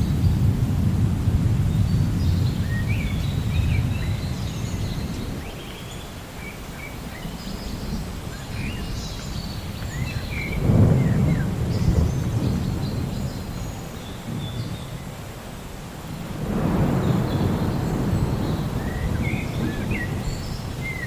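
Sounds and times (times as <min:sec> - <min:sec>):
low rumble of thunder: 0:00.0 - 0:21.0
steady rain: 0:00.0 - 0:21.0
birds chirping: 0:16.6 - 0:21.0.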